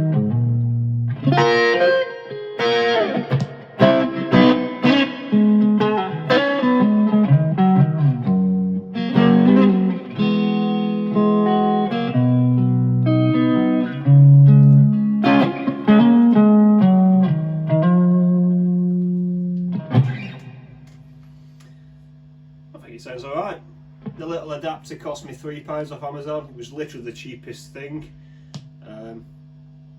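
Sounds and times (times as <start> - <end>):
electric guitar chord ringing: 0.0 - 21.1
electric guitar melody: 0.0 - 21.2.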